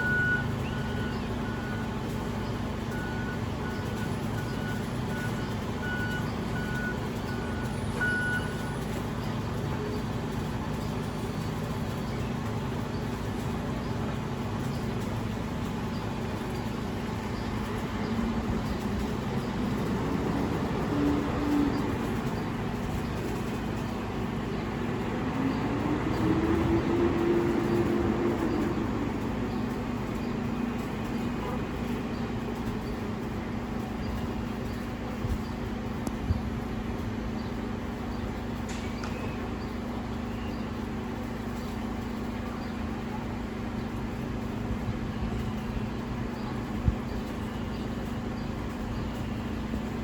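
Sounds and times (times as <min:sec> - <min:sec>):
diesel engine idling and revving: 0:00.0 - 0:50.0.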